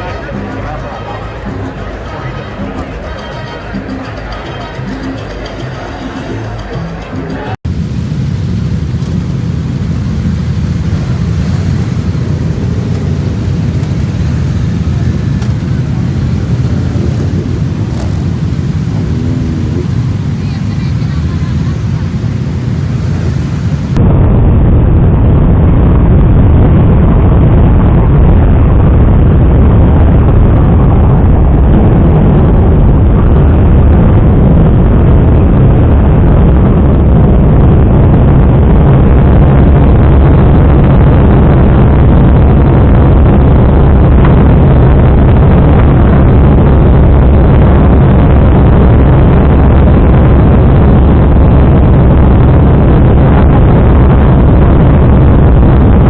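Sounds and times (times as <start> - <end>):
motorcycle engine running: 16.9 - 20.4.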